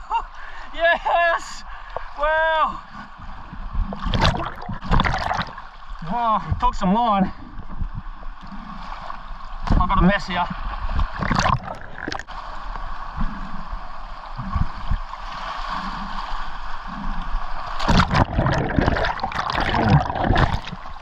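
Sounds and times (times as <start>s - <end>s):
water gurgling and sloshing: 2.8s - 21.0s
water splashing: 3.8s - 5.8s, 10.8s - 21.0s.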